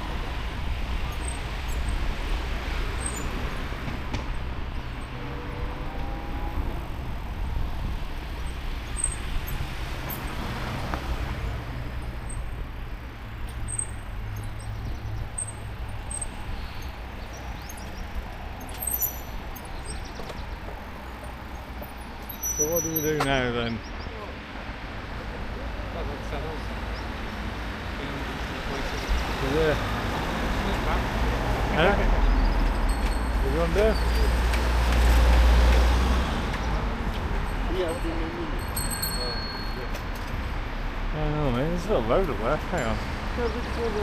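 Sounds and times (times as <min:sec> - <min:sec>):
wind rumble on microphone: 0:00.0 - 0:13.0
vehicle passing: 0:00.0 - 0:13.4, 0:14.0 - 0:38.9
road traffic: 0:00.0 - 0:44.0.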